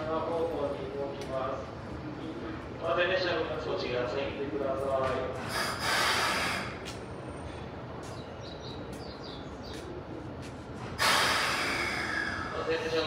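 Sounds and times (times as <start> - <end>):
train rumbling: 0.0 - 13.0
loud rush of hissing air: 5.4 - 6.8, 10.9 - 12.9.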